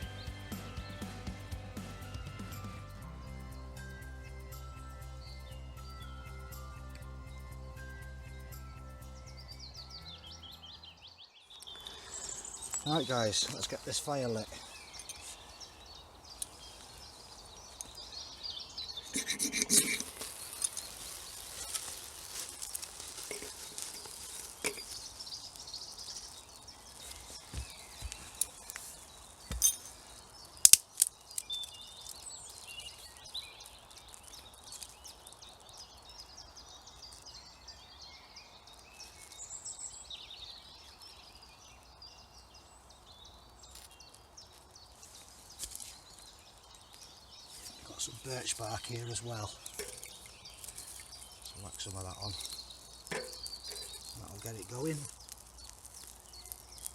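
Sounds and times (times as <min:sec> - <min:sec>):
faint outdoor background: 0:00.0 - 0:56.9
rustling: 0:11.7 - 0:36.0, 0:43.6 - 0:56.9
loud scrape: 0:19.1 - 0:22.0.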